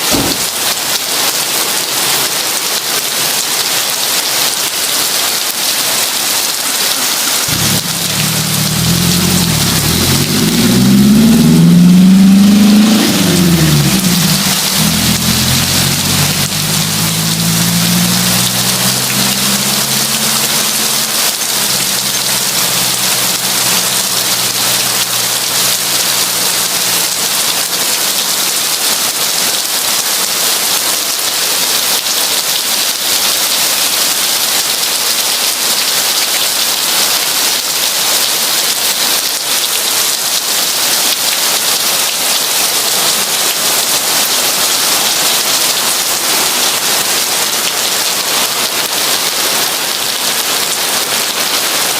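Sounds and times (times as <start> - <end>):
heavy rain pouring: 0.0 - 51.9
low hum: 7.5 - 21.0.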